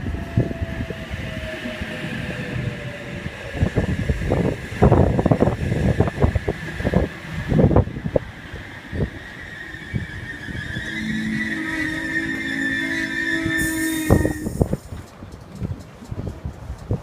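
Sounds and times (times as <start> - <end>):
electric train motor whine: 0.0 - 14.9
steady high hum: 7.8 - 15.0.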